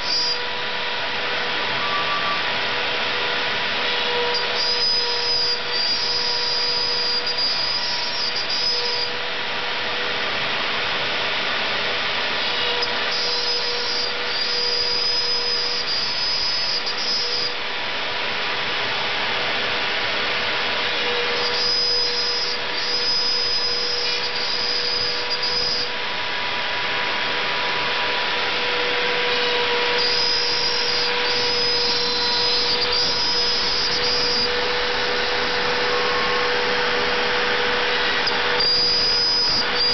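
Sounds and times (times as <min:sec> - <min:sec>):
high-pitched whine: 0:00.0 - 0:39.9
router motor whine: 0:00.0 - 0:39.9
cutting noise: 0:28.8 - 0:39.9.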